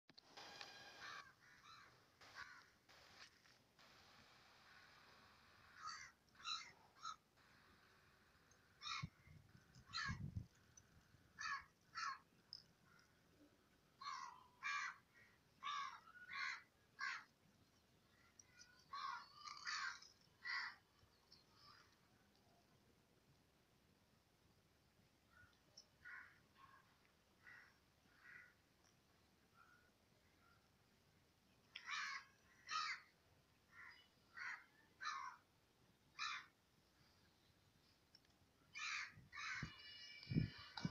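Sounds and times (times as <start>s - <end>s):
bird harsh caw-like calls: 0.8s - 3.2s, 5.6s - 7.6s, 8.8s - 9.2s, 11.4s - 12.2s, 14.0s - 17.3s, 18.9s - 20.8s, 25.3s - 26.4s, 27.4s - 28.6s, 31.8s - 33.1s, 33.7s - 35.4s, 36.2s - 36.6s, 38.8s - 40.9s.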